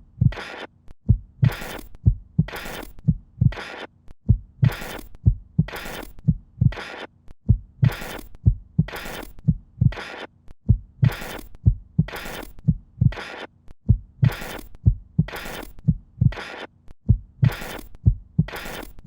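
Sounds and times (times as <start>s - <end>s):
heartbeat-like low thumps: 0.0s - 0.4s, 1.1s - 3.6s, 4.3s - 6.8s, 7.4s - 10.0s, 10.6s - 13.2s, 13.8s - 16.4s, 17.0s - 18.6s.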